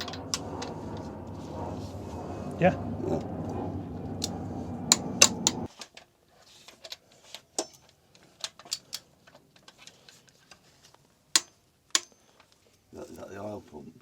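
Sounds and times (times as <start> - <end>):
steady low hum: 0.0 - 5.7.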